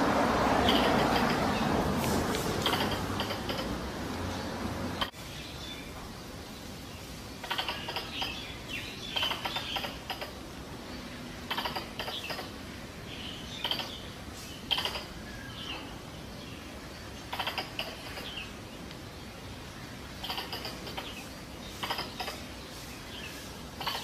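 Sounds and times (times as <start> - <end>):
squirrel chattering calls: 0.5 - 4.0, 4.9 - 5.2, 7.4 - 10.6, 11.4 - 15.8, 17.0 - 18.6, 20.0 - 24.0.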